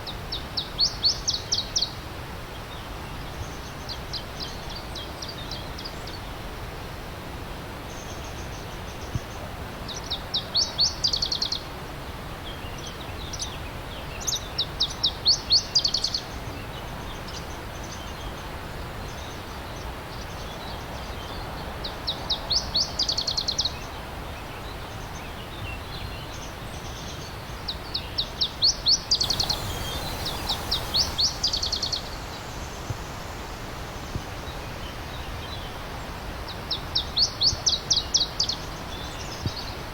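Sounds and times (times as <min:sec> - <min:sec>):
songbird singing high notes: 0:29.0 - 0:34.0
stream flowing: 0:29.1 - 0:35.3.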